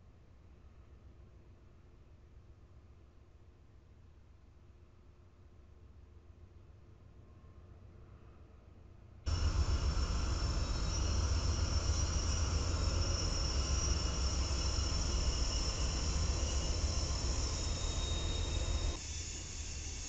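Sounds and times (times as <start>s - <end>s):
freight train rumbling past: 9.3s - 20.0s
hiss: 9.3s - 20.0s.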